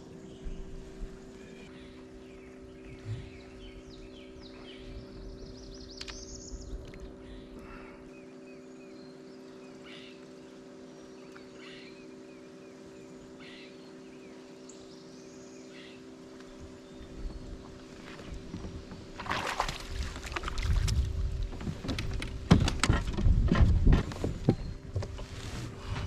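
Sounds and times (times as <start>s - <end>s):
birds chirping: 0.0s - 20.7s
steady low hum: 0.0s - 26.0s.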